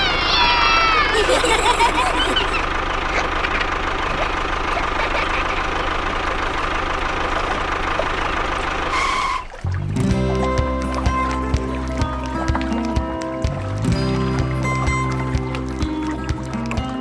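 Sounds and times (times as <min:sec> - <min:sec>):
engine idling: 0:00.0 - 0:17.0
short squeaky chirps: 0:07.5 - 0:09.6.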